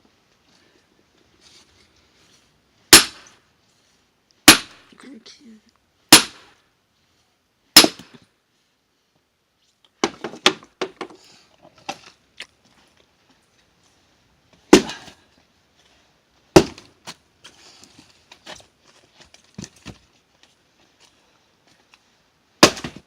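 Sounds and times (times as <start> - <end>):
axe splitting firewood: 2.9 - 3.3, 4.5 - 4.8, 6.1 - 6.5, 7.8 - 8.2, 10.0 - 12.2, 14.6 - 15.2, 16.5 - 20.0, 22.6 - 23.0
wood knocks and clatter: 10.0 - 11.2.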